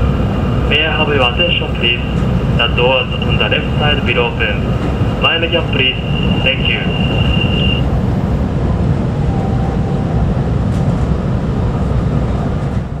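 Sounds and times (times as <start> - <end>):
train low rumble: 0.0 - 13.0
thin high whine: 5.4 - 7.9.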